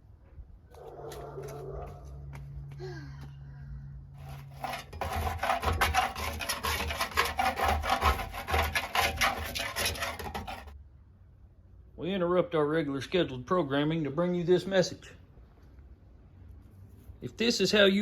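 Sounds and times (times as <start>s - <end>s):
abrasive rubbing by hand: 4.2s - 10.8s.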